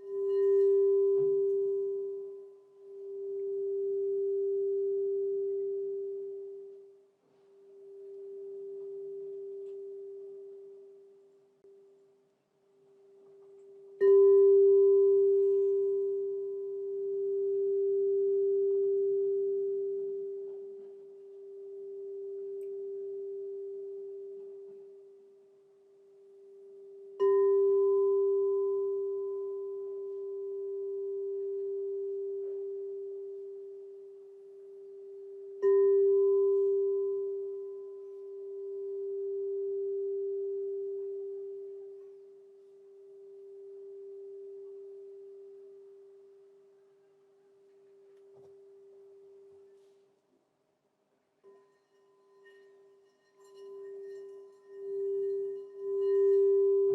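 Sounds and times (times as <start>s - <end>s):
crystal singing bowl ringing: 0.0s - 7.0s, 7.7s - 11.4s, 13.2s - 46.9s, 51.4s - 56.9s.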